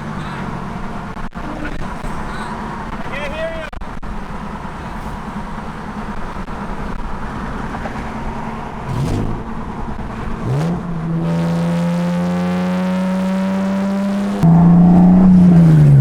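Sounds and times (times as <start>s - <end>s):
car engine revving: 0.0s - 3.1s, 3.9s - 16.0s
car accelerating at high rpm: 3.8s - 16.0s.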